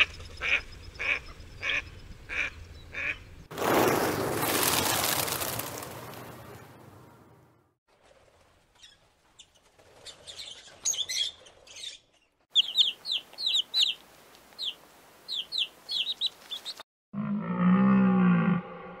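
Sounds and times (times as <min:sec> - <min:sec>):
high bird calls: 0:08.8 - 0:14.0, 0:14.6 - 0:16.8
chick peeping: 0:12.6 - 0:14.0, 0:14.6 - 0:16.8.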